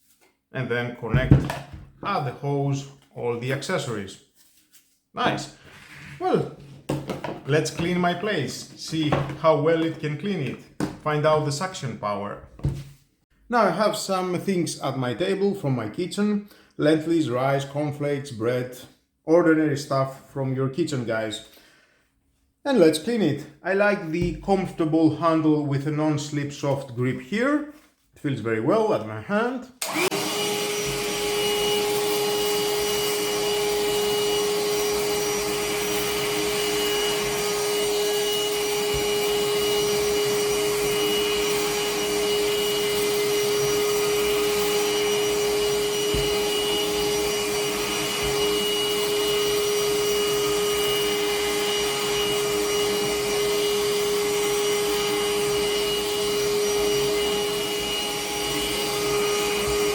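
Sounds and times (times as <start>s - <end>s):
handheld vacuum cleaner running: 29.8s - 59.9s.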